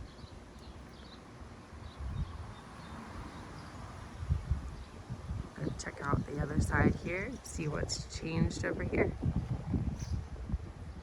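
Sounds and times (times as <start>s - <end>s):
soft steady rush: 5.4s - 9.3s.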